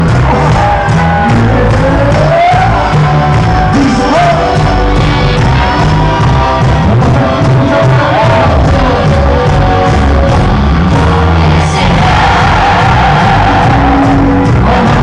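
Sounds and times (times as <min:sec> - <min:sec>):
crowd singing and shouting: 0:00.0 - 0:15.0
live band playing: 0:00.0 - 0:15.0.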